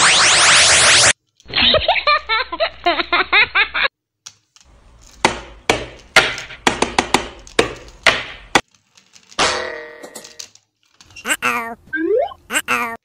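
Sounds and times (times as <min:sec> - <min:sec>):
plastic toy trains clicking: 0:08.6 - 0:09.4.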